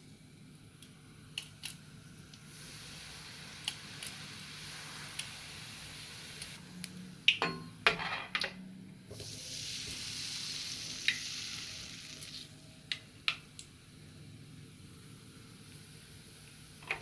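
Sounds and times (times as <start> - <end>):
batter sizzling in hot oil: 0.7 - 6.7, 9.1 - 12.6.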